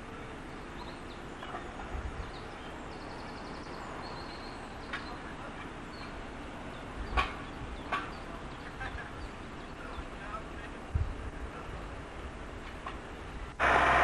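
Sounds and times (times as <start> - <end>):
small birds chirping: 0.0 - 10.9
low outdoor rumble: 0.0 - 14.0.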